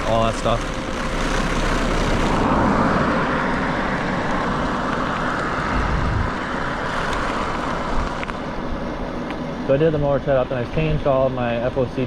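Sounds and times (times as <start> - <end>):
bike tyre noise: 0.0 - 11.5
wind on microphone: 3.9 - 8.8.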